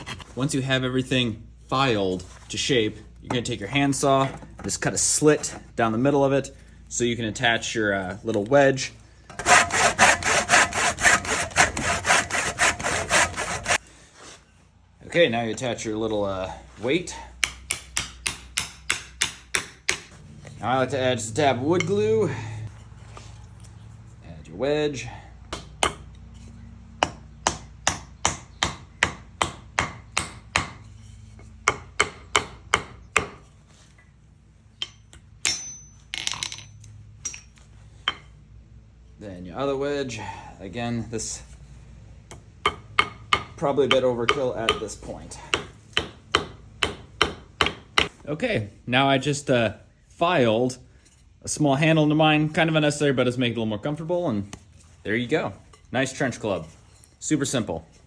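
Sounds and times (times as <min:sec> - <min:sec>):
handsaw cutting wood: 0:09.3 - 0:13.8
hammer striking wedge into wood: 0:27.0 - 0:30.8, 0:42.7 - 0:44.9, 0:45.5 - 0:48.2.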